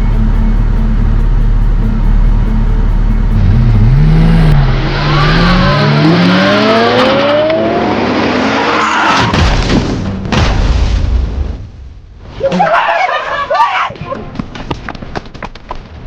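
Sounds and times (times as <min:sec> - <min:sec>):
car engine revving: 0:00.0 - 0:09.2
tires skidding: 0:03.4 - 0:10.1.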